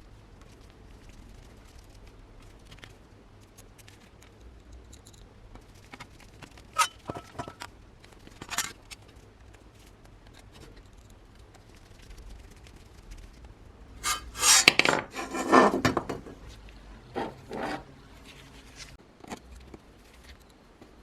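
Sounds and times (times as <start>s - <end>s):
short scrape: 6.8s - 7.5s, 14.0s - 15.8s.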